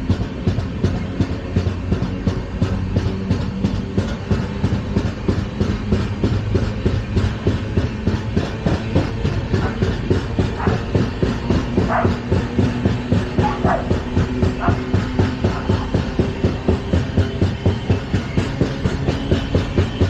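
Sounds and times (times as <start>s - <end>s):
train rumble: 0.0s - 20.0s
train wheels clattering over rail joints: 0.0s - 20.0s.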